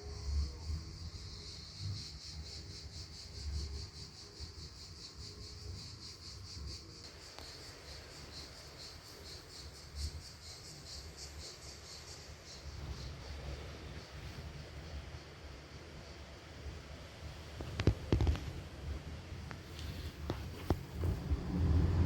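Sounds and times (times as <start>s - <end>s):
cricket chirping: 0.0s - 22.0s
faint low rumble: 12.7s - 22.0s.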